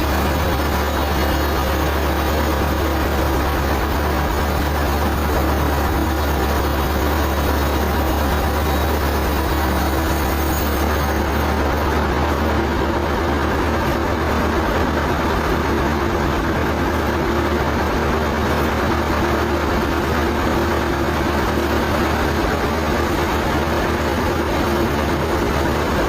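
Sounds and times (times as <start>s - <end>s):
sawmill machinery drone: 0.0s - 26.0s.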